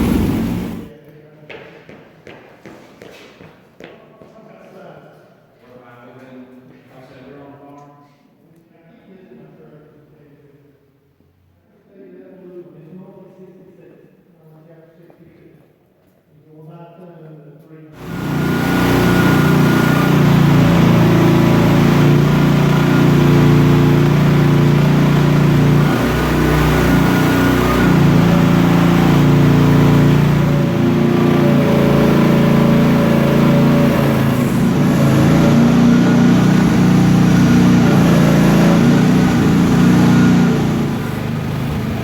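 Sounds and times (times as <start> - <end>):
excavator engine running at high revs: 0.0 - 0.9, 18.0 - 42.0.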